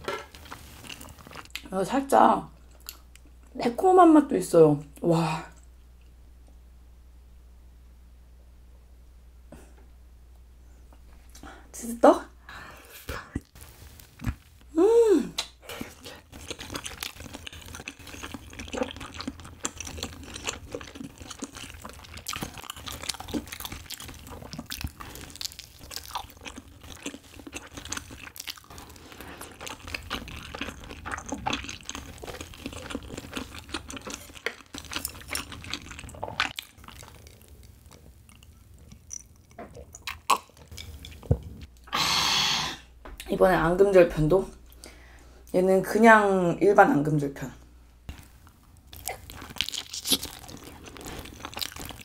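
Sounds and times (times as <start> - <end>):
close-up chewing clicks and smacks: 15.4 - 41.4, 48.9 - 52.0.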